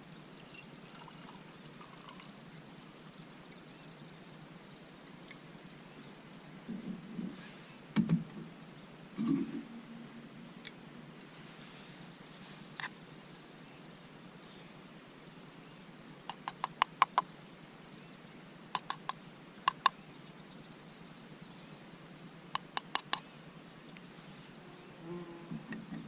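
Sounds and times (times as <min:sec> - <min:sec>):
bird sharp clicking calls: 0:16.3 - 0:17.4, 0:18.7 - 0:20.0, 0:22.6 - 0:23.3.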